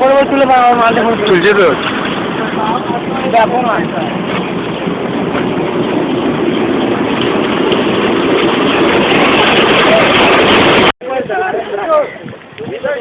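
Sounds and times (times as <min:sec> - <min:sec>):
toy train rumbling: 0:01.9 - 0:10.9.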